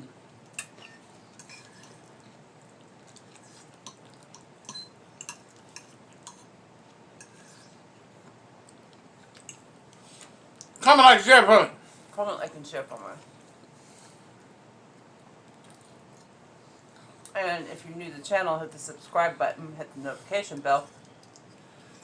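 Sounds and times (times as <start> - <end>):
cutlery clinking on plates: 0.6 - 2.0, 3.9 - 6.5.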